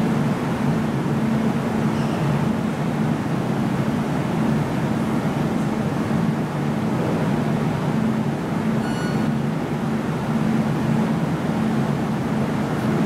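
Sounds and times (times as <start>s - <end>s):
train running noise: 3.7s - 13.0s.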